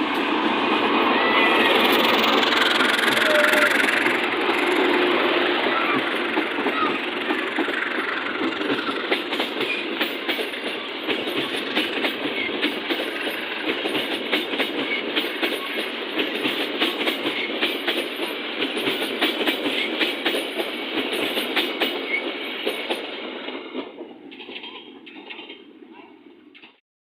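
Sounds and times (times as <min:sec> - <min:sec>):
train wheels clattering over rails: 0:00.0 - 0:25.7.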